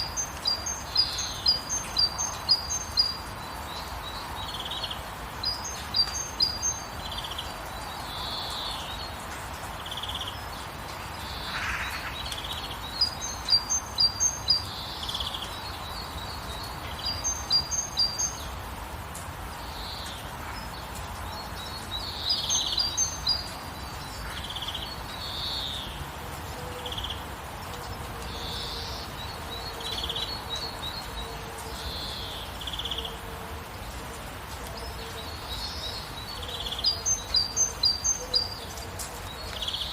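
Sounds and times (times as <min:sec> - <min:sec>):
birds lower calls: 0:00.0 - 0:18.6
steady rain falling: 0:00.0 - 0:39.9.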